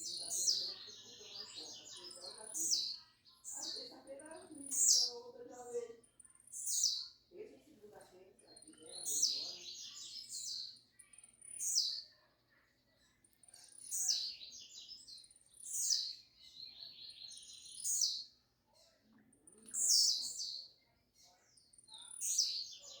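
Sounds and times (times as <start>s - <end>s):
bird singing short song: 0.0s - 5.3s, 6.0s - 7.2s, 8.5s - 12.1s, 13.4s - 18.4s, 19.5s - 20.8s, 21.4s - 23.0s.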